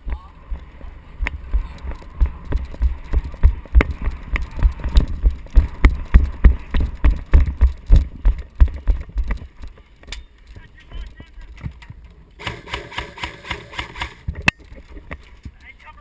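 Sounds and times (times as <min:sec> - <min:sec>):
running footsteps: 0:00.0 - 0:16.0
sharp clicks: 0:01.2 - 0:11.2.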